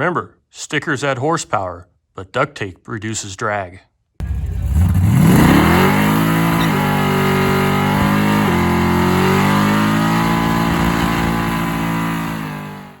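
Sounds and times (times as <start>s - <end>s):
car engine accelerating hard: 4.2s - 13.0s.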